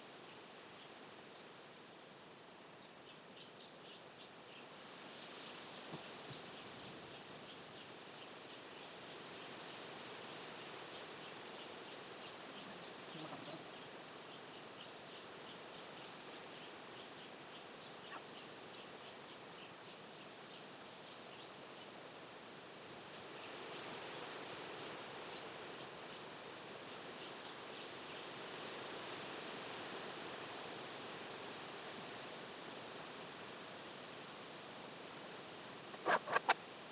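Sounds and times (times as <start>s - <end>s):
outdoor background noise: 0.0s - 36.9s
faint bird chirps: 11.0s - 20.2s, 35.9s - 36.6s.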